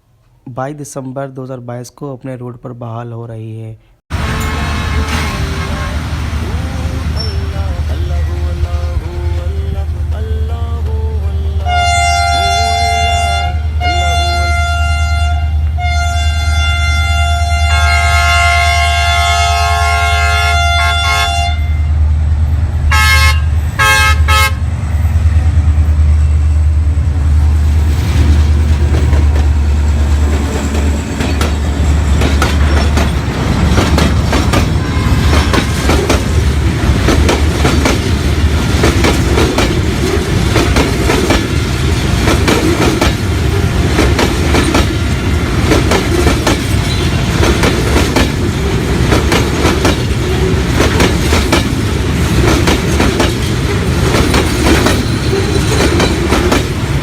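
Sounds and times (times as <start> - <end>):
train horn: 4.1 - 6.3, 11.3 - 21.9, 22.9 - 24.7, 34.8 - 35.6
wheels clattering over rail joints: 27.9 - 57.0.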